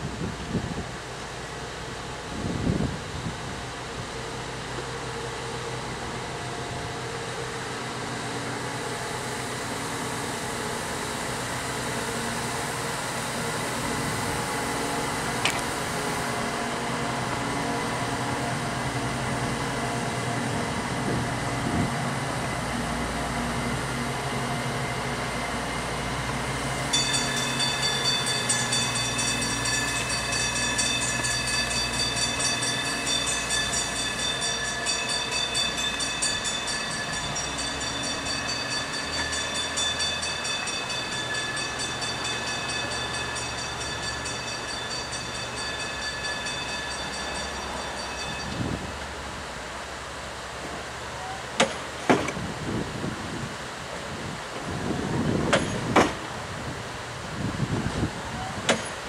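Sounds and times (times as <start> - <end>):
train engine drone: 0.0 - 59.0
high ringing tones: 26.8 - 49.2.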